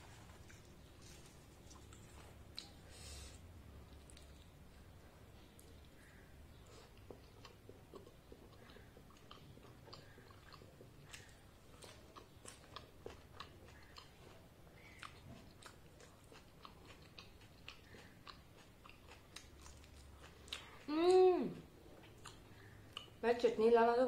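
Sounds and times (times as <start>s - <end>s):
chewing food: 0.2s - 2.9s, 3.6s - 23.2s.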